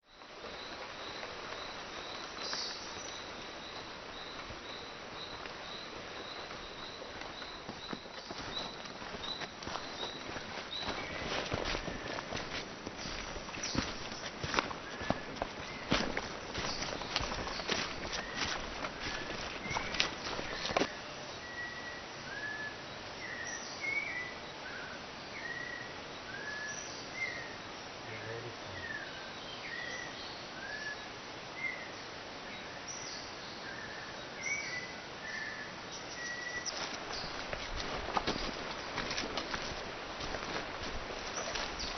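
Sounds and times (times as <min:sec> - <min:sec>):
steady background hiss: 0:00.1 - 0:41.9
birds whistling: 0:13.0 - 0:20.9.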